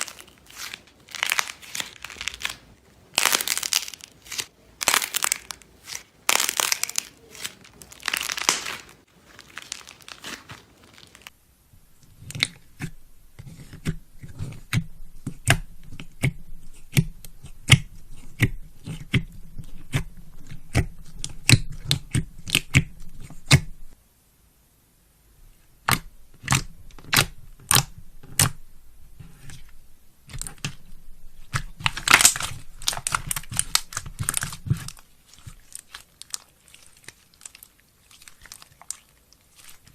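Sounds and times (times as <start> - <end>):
slime crinkly crunching: 0.0 - 11.4, 30.2 - 39.9.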